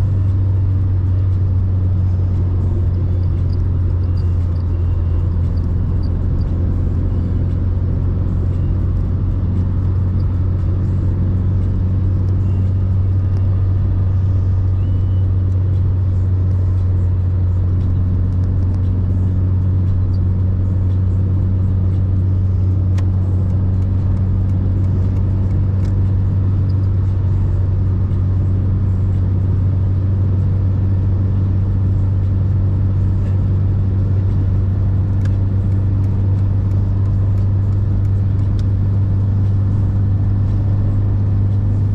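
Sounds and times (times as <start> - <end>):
car engine low drone: 0.0 - 41.9.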